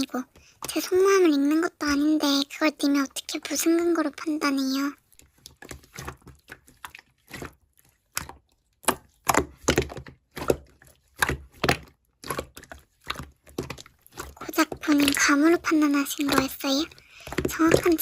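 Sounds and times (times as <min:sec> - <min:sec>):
slime squished by hand: 0:05.1 - 0:18.0.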